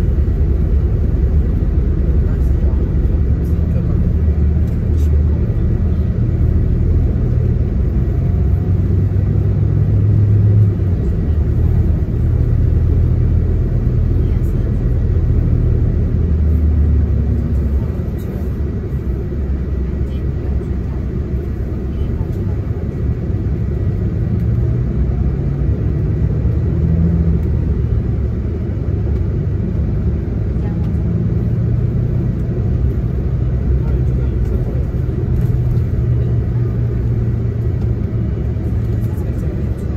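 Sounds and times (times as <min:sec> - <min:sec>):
bus engine drone: 0:00.0 - 0:39.9.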